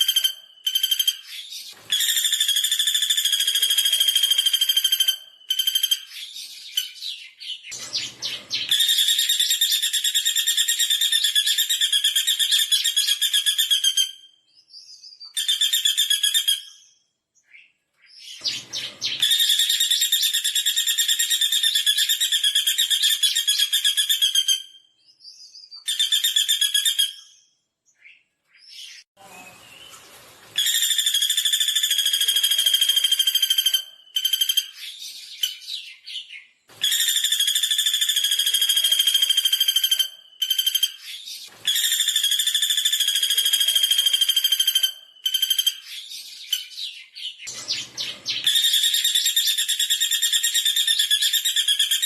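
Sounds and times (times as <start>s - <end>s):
woodpecker rattling trills: 0.0s - 6.5s, 8.0s - 13.9s, 47.6s - 52.0s.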